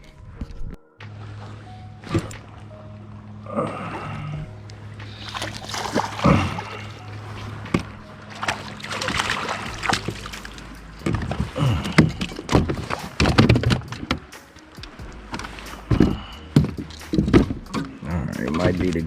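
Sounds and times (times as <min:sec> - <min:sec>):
gear knocking in a kayak: 0:07.6 - 0:19.0.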